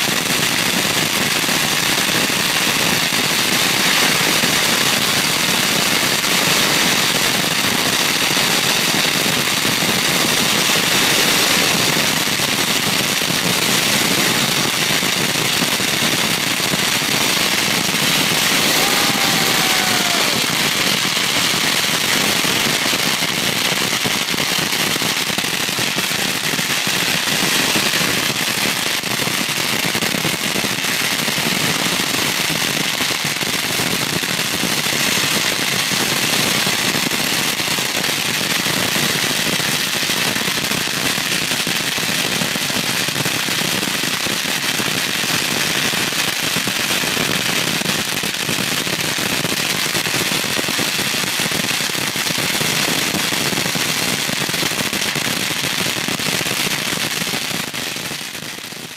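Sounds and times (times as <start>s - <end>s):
firecrackers rattling: 15.6s - 28.1s.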